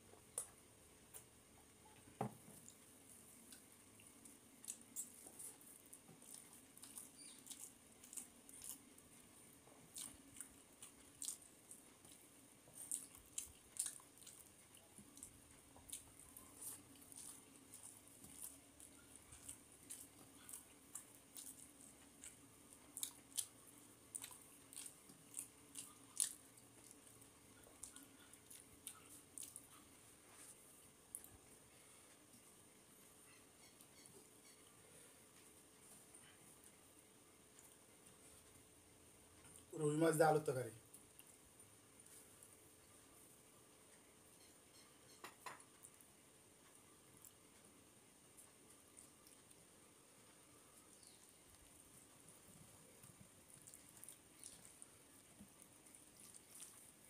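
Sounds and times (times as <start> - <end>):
chewing and mouth smacks: 2.5 - 31.4, 48.4 - 57.0.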